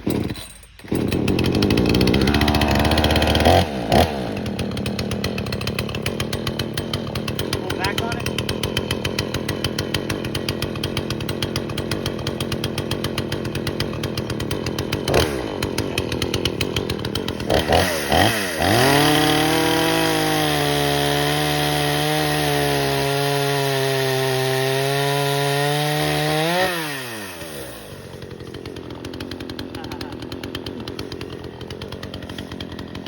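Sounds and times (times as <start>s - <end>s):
chainsaw idling and revving: 0.0s - 33.0s.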